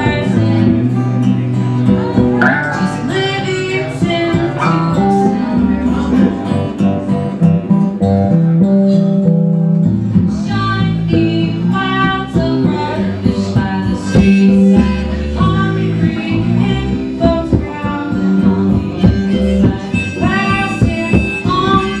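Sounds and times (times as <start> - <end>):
acoustic guitar strumming: 0.0 - 22.0
person singing: 2.0 - 6.7, 10.3 - 22.0.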